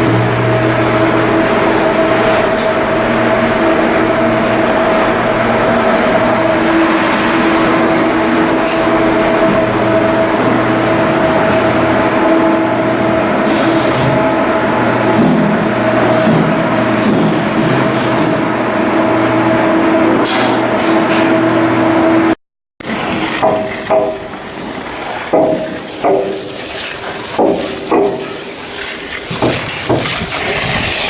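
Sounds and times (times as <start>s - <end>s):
ship diesel engine drone: 0.0s - 16.9s.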